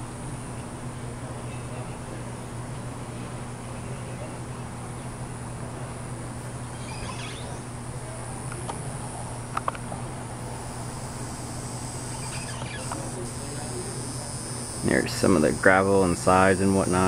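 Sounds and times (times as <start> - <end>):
low steady hum: 0.0 - 17.0
high-pitched insect chorus: 6.6 - 7.8, 10.6 - 17.0.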